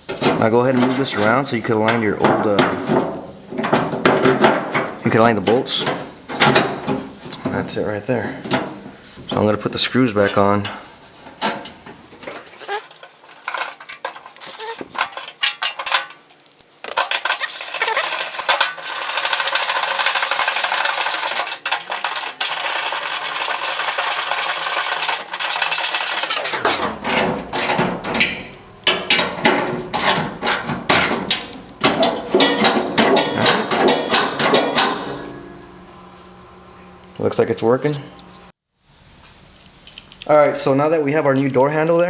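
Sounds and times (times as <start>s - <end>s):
ratchet wrench ratcheting: 16.8s - 26.8s.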